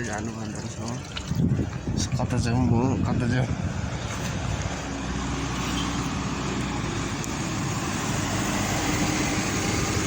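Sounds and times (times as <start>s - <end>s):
road traffic hum: 0.0s - 10.0s.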